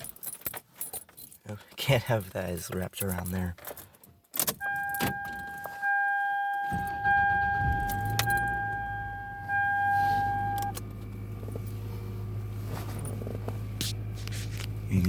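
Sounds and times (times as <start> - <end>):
car starter cranking: 2.2 - 15.0
dashboard warning tone: 4.5 - 14.2
car engine idling: 4.6 - 15.0.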